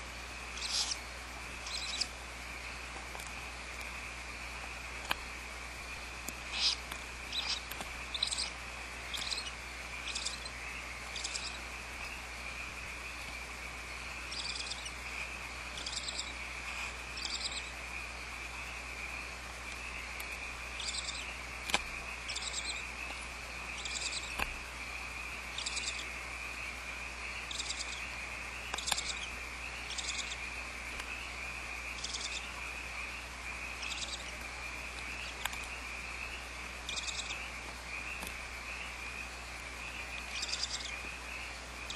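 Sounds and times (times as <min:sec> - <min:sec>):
owl hissing calls: 0:00.5 - 0:02.1, 0:06.4 - 0:12.2, 0:14.2 - 0:17.8, 0:20.7 - 0:23.0, 0:23.7 - 0:24.4, 0:25.5 - 0:26.1, 0:27.4 - 0:28.1, 0:28.7 - 0:30.5, 0:32.0 - 0:34.4, 0:36.3 - 0:37.6, 0:39.9 - 0:41.1.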